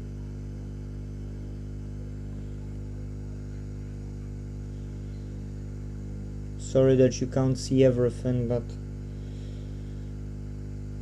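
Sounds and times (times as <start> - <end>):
hot air rework station humming: 0.0 - 11.0.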